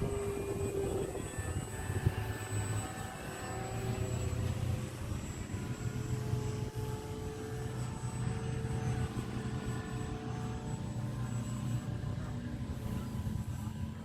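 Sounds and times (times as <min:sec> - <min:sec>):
model plane motor and propeller drone: 0:00.0 - 0:14.0.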